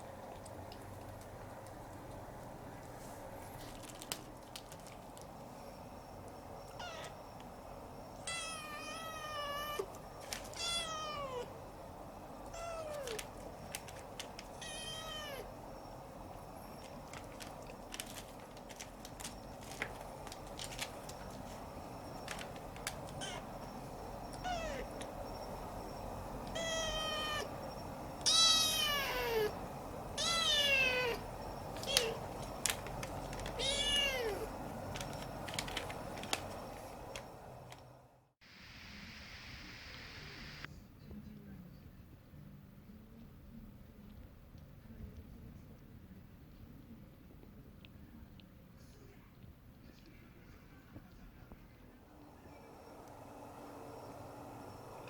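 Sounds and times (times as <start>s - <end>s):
kitten mewing: 23.2s - 23.5s, 24.4s - 25.0s, 28.2s - 29.6s, 30.2s - 32.3s, 33.6s - 34.6s.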